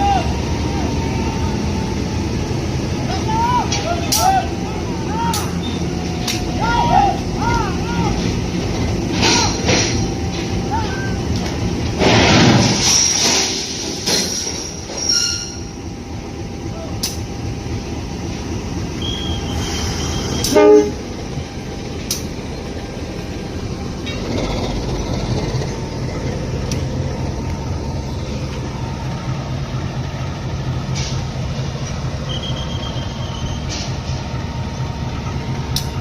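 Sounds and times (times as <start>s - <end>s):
train rumbling on track: 0.0s - 36.0s
metallic clanks: 8.2s - 15.6s
high thin squeal: 14.2s - 15.7s, 19.0s - 20.6s
train horn toot: 19.0s - 21.1s.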